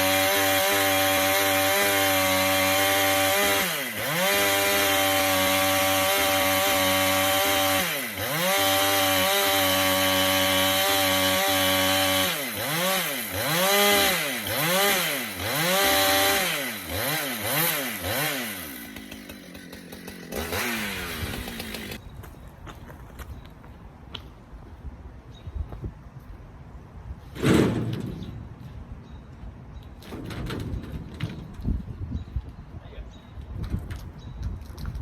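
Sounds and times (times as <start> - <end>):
chainsaw cutting wood: 0.0 - 22.0
chainsaw idling: 0.0 - 22.0
chainsaw revving: 0.0 - 22.0.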